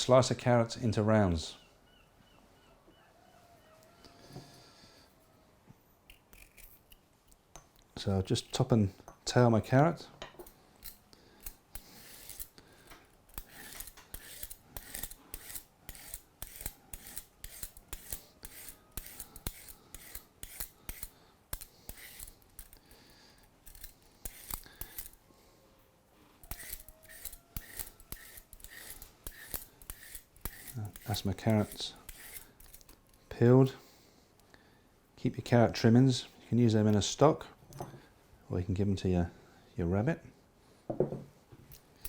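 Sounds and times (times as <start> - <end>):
carrot peeler scraping: 10.8 - 25.2, 26.4 - 33.3.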